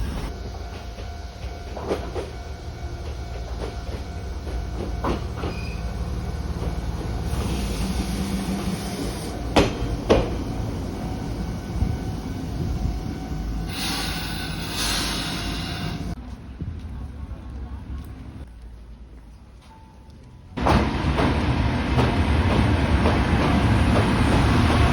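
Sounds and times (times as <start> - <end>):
train rumbling past: 0.0 - 18.4, 20.5 - 24.9.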